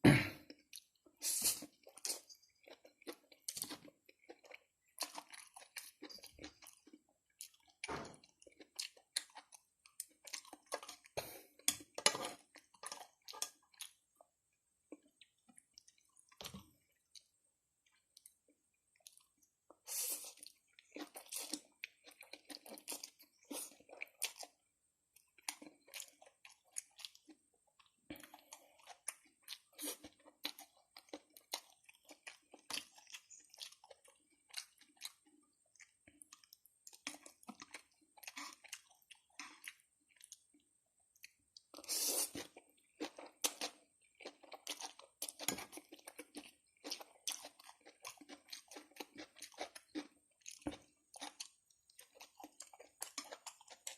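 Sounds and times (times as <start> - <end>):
chewing and mouth smacking: 1.6 - 14.0, 14.9 - 53.9.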